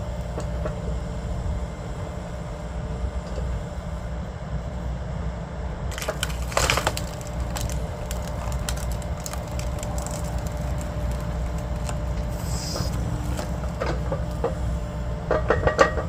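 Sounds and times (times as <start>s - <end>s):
low engine drone: 0.0s - 16.0s
log cracking and splintering: 5.9s - 14.6s.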